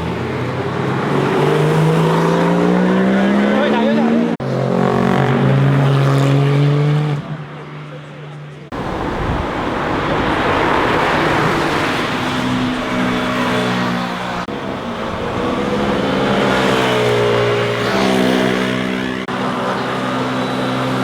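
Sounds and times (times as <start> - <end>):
motorcycles revving past: 8.7 - 21.0.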